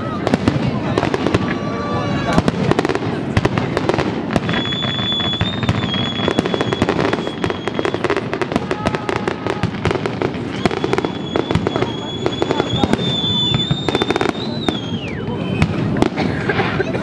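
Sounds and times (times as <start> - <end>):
fireworks bangs and crackles: 0.0 - 17.0
high whistling tone: 4.5 - 8.2, 10.5 - 15.9.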